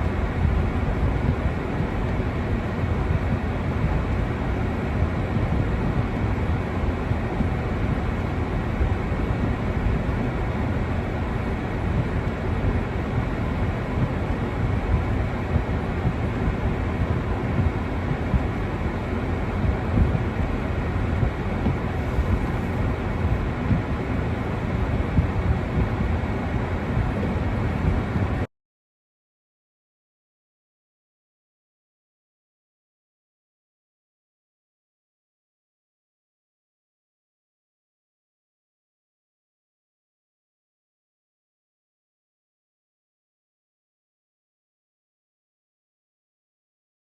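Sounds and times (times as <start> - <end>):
wind buffeting microphone: 0.1 - 28.5.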